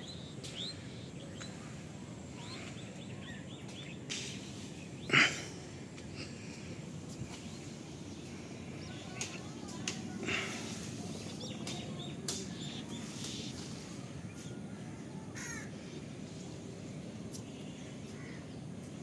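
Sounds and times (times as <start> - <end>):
low background noise: 0.0 - 19.0.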